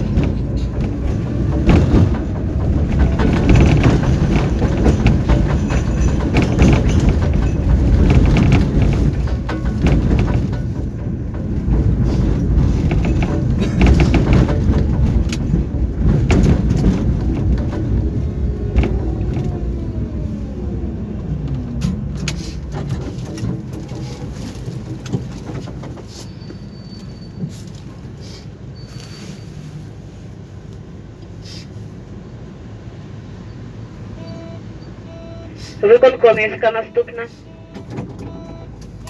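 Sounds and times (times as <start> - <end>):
tram wheels rumbling on rails: 0.0 - 39.0
faint high beeps: 34.2 - 38.7.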